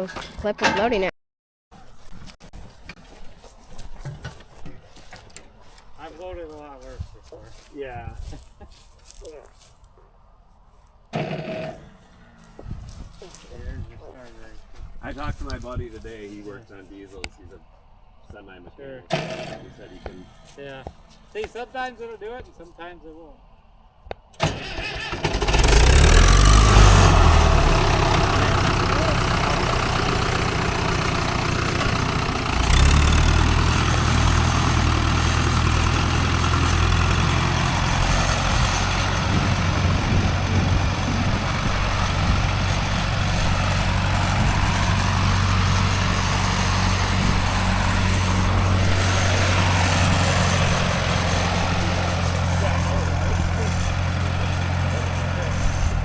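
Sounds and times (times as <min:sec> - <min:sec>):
engine starting and idling: 0:11.2 - 0:12.3, 0:19.1 - 0:20.1, 0:24.4 - 0:56.0.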